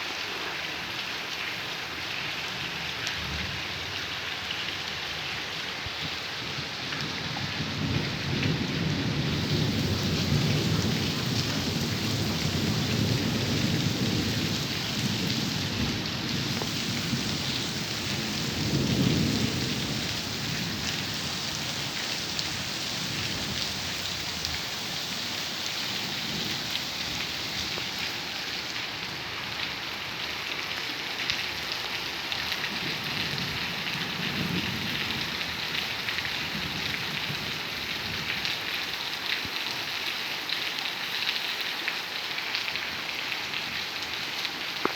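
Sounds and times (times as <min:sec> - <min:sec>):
heavy rain hissing: 0:06.3 - 0:38.0
thunder rumbling: 0:07.5 - 0:28.4.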